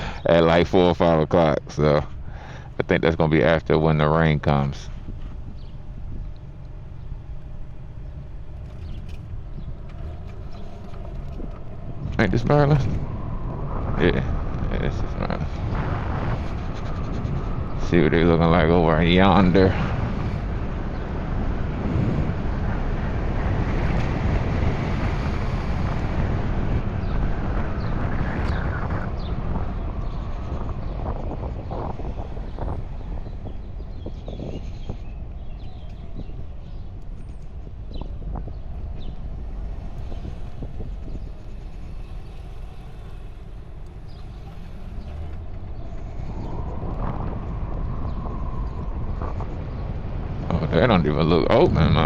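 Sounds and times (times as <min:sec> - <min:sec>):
road noise: 0:00.0 - 0:52.0
wind rushing over microphone: 0:00.0 - 0:52.0
electric motor whine: 0:38.0 - 0:49.4.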